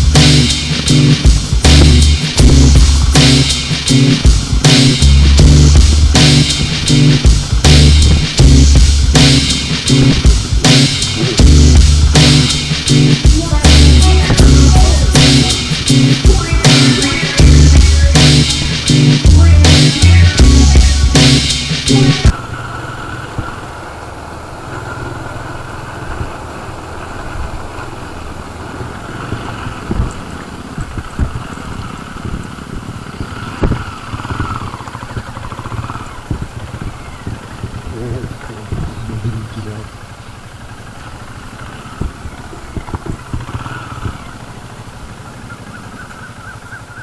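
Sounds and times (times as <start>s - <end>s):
dull low thumps: 0.0s - 22.4s
motorcycle engine running: 0.0s - 47.0s.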